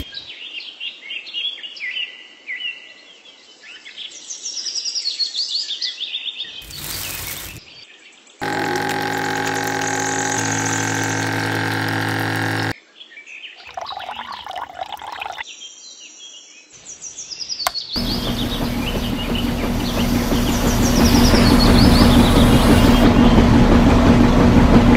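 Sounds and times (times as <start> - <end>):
gritty pour: 6.6 - 7.6, 13.6 - 15.4
hum of many tones: 8.4 - 12.7, 18.0 - 24.9
birds chirping trills: 18.0 - 23.4
steady rumbling noise: 18.0 - 24.9.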